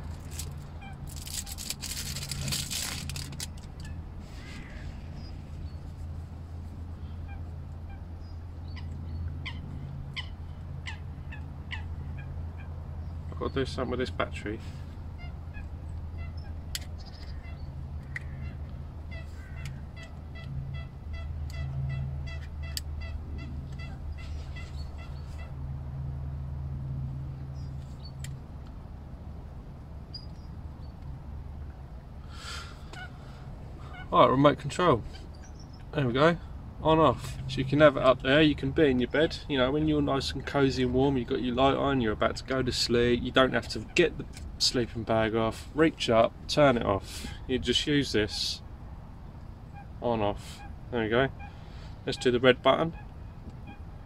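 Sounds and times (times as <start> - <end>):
steady low hum: 0.0 - 54.0
plastic remote control rustling: 0.1 - 3.8
water birds honking: 0.3 - 5.4, 7.0 - 12.8, 15.1 - 25.6, 32.3 - 35.4.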